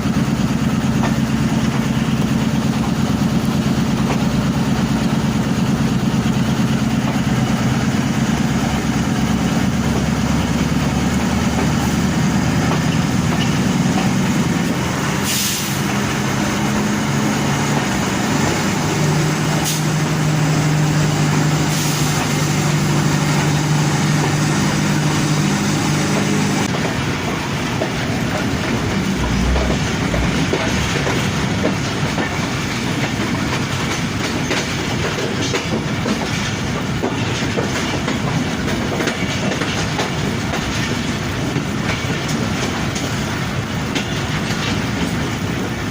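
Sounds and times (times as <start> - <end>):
diesel locomotive engine drone: 0.0 - 45.9
train rolling: 0.0 - 45.9
heavy rain hiss: 13.7 - 31.6.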